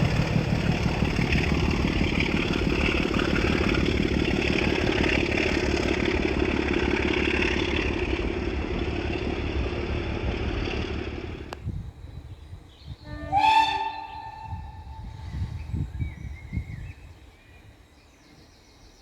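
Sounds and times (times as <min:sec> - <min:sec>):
train rumbling: 0:00.0 - 0:17.9
train whistle: 0:13.0 - 0:15.5.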